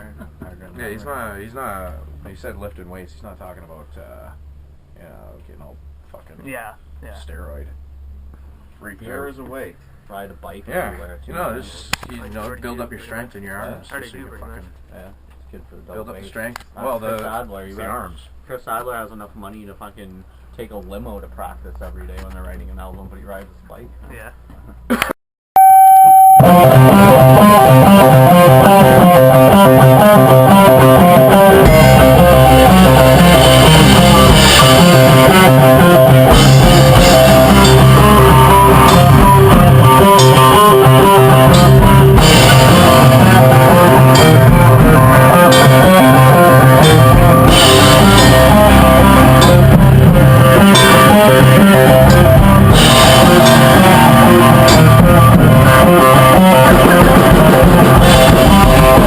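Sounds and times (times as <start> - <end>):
drum kit: 24.9 - 59.0
electric guitar: 25.6 - 59.0
rock music: 25.6 - 59.0.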